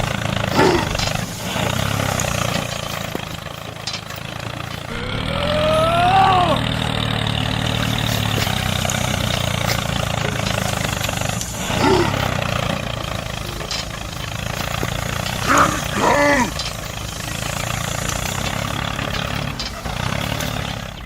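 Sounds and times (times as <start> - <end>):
tractor engine idling: 0.0 - 21.0
short exclaimed voices: 4.9 - 7.0, 15.3 - 16.6.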